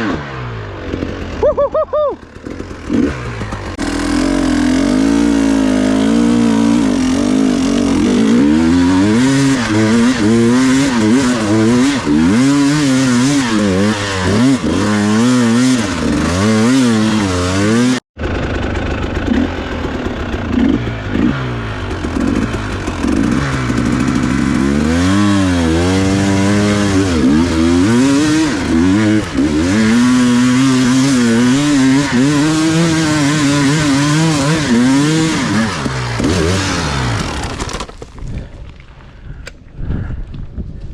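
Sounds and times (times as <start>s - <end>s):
dirt bike engine revving: 0.0s - 37.7s.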